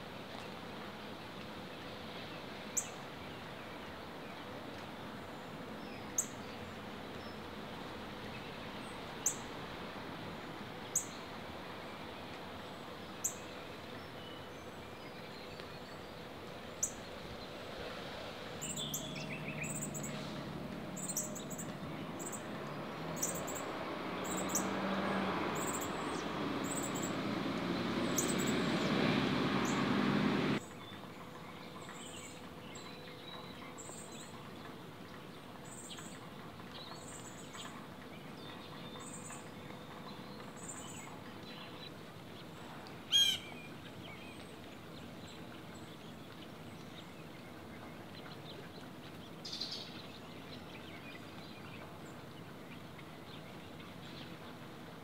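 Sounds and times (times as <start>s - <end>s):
wavering bird call: 43.1s - 43.4s.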